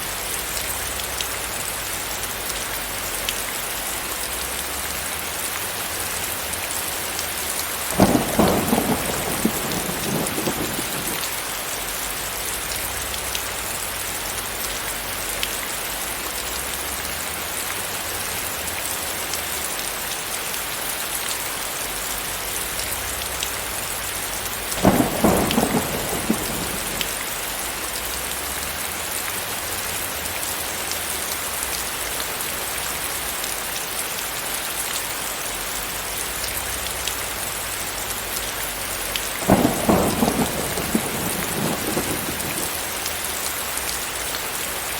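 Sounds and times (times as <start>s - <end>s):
rain hiss: 0.0s - 44.9s
thunder cracks: 7.9s - 11.4s, 24.8s - 27.4s, 39.4s - 43.0s.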